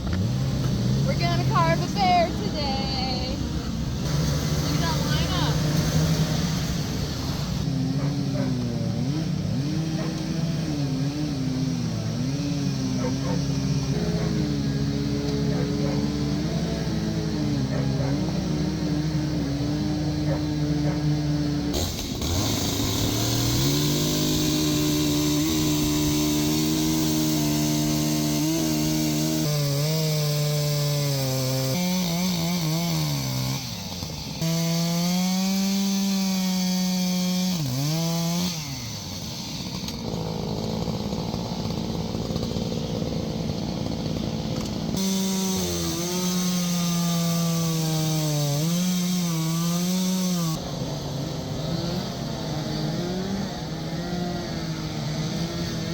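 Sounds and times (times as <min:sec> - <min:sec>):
chainsaws carving wood: 0:00.0 - 0:55.9.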